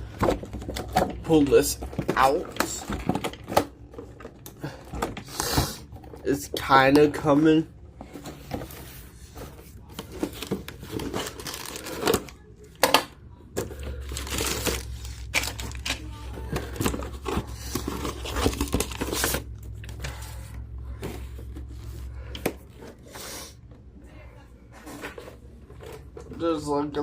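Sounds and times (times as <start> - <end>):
low steady hum: 0.0 - 27.0
packaging crinkling and tearing: 10.0 - 12.4, 13.9 - 20.0.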